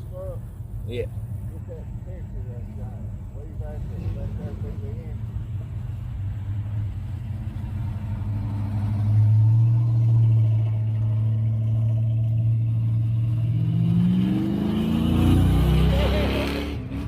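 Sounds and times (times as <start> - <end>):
car engine revving: 1.4 - 17.0.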